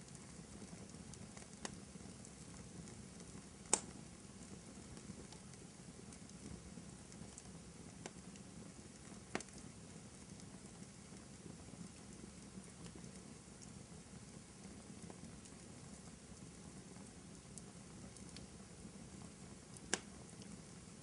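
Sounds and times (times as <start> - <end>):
burning logs popping: 0.0 - 21.0
fireplace crackling: 0.0 - 21.0.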